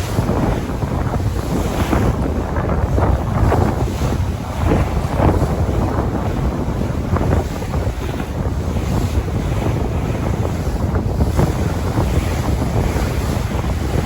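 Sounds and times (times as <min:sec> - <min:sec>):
surf washing onto beach: 0:00.0 - 0:14.0
wind buffeting microphone: 0:00.0 - 0:14.0.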